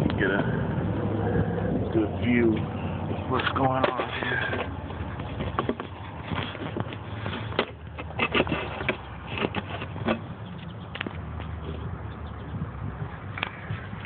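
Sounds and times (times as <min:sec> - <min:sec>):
steady low rumble: 0:00.0 - 0:08.0, 0:09.9 - 0:14.0
handling clicks and knocks: 0:03.4 - 0:11.7.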